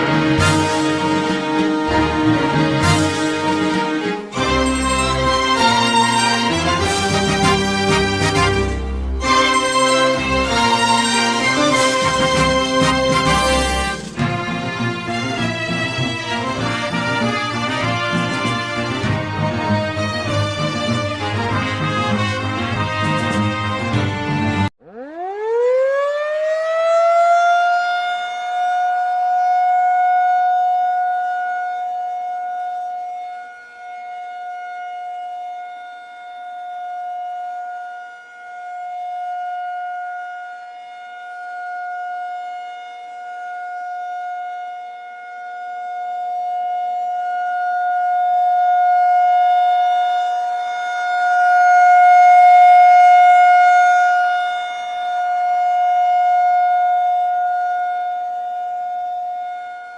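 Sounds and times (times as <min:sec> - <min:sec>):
outdoor warning siren wailing: 0:00.0 - 0:59.9.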